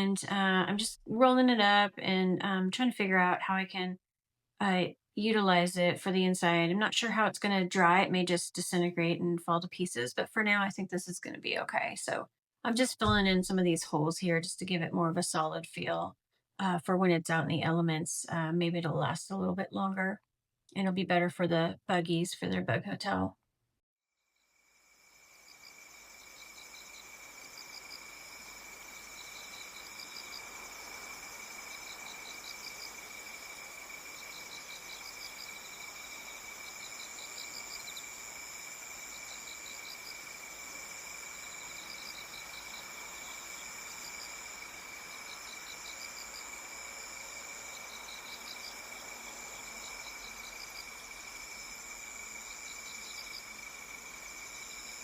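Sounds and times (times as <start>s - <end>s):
insects trilling: 24.3s - 55.0s.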